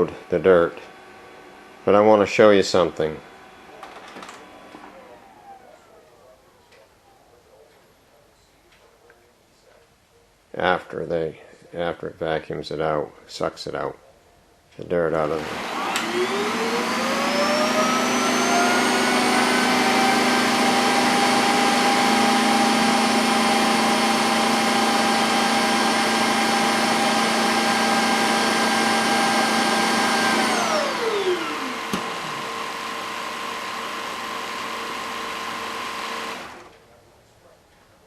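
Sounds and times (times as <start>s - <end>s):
vacuum suction motor whine: 0.0s - 6.3s, 15.3s - 36.8s.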